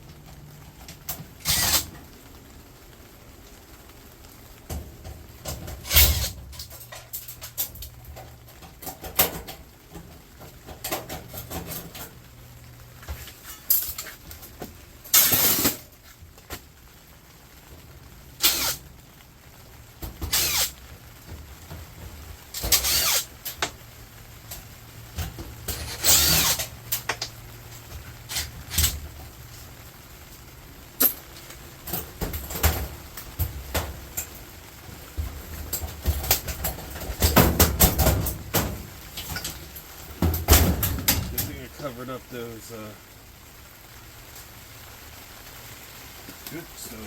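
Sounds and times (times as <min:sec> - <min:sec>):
scrap metal knocking and scraping: 0:00.8 - 0:02.0, 0:04.7 - 0:12.2, 0:13.0 - 0:15.9, 0:20.0 - 0:23.8, 0:24.5 - 0:29.7, 0:31.0 - 0:41.7.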